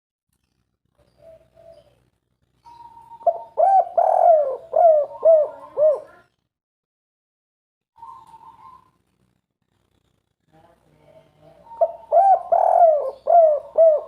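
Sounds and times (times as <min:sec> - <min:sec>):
dove cooing: 0:01.0 - 0:02.0, 0:02.6 - 0:06.2, 0:08.0 - 0:09.0, 0:11.6 - 0:14.0.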